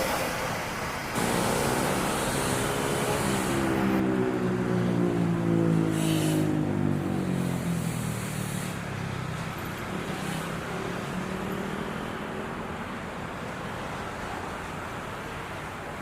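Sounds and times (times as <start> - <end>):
rumble of passing train: 0.0 - 11.6
diesel locomotive engine drone: 0.0 - 16.0.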